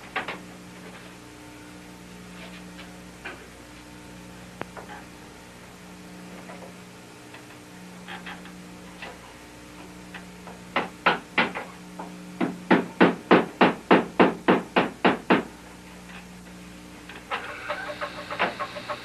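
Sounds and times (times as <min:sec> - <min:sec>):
hammer striking wood: 0:12.4 - 0:15.5.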